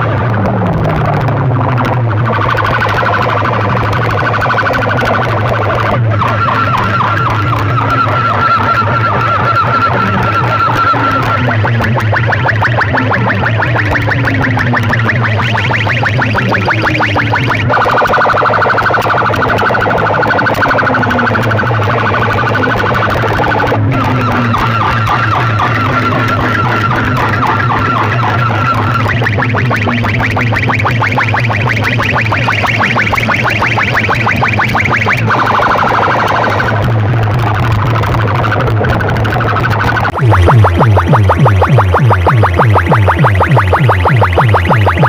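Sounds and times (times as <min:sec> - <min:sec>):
electronic siren-like alarm: 0:00.0 - 0:45.0
heavy bass: 0:00.0 - 0:45.0.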